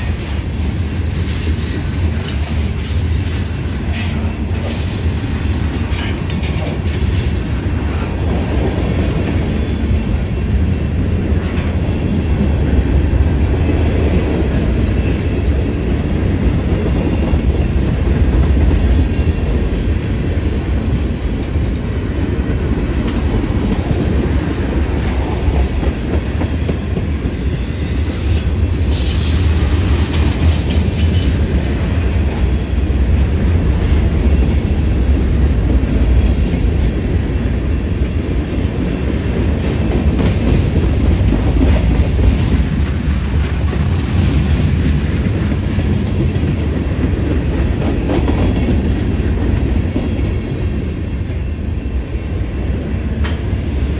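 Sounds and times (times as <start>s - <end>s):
freight train rumbling past: 0.0s - 53.9s
high-pitched squeal: 27.3s - 32.6s.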